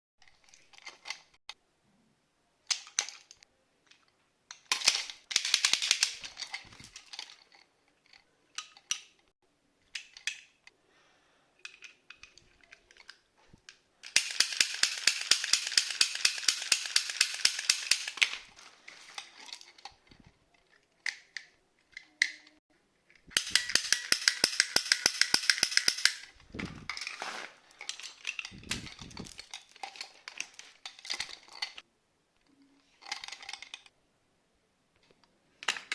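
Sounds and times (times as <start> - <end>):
toy cap guns snapping: 4.5 - 6.2, 14.0 - 18.5, 23.3 - 26.3.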